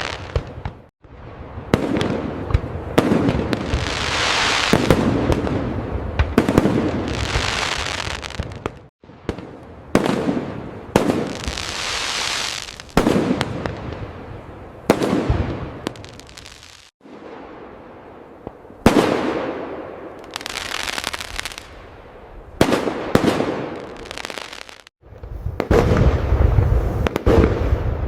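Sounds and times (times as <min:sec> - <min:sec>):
crackling fizz of fireworks: 0:00.0 - 0:21.9, 0:22.6 - 0:28.0.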